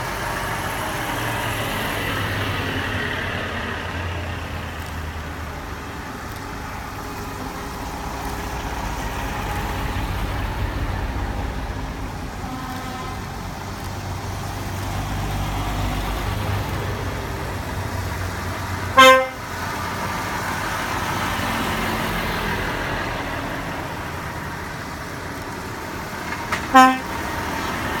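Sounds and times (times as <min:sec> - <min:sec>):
heavy truck engines rumbling: 0:00.0 - 0:28.0
truck horn blast: 0:12.4 - 0:13.3, 0:18.9 - 0:19.5, 0:26.6 - 0:27.2.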